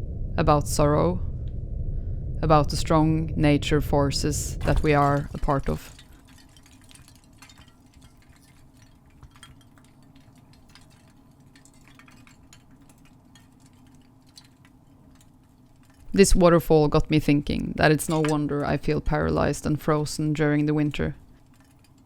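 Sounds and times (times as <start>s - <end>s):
ice tinkling clicks: 4.7s - 16.4s, 20.6s - 22.0s.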